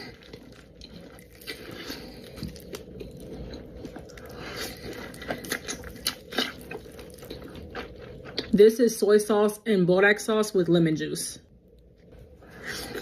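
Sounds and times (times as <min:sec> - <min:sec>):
crunchy chewing: 0:00.0 - 0:08.6.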